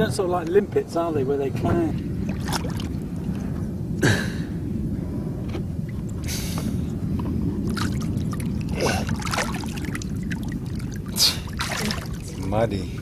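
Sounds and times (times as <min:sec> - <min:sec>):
wind rumbling on microphone: 0:00.0 - 0:13.0
shallow water splashing: 0:00.3 - 0:03.8, 0:05.8 - 0:13.0.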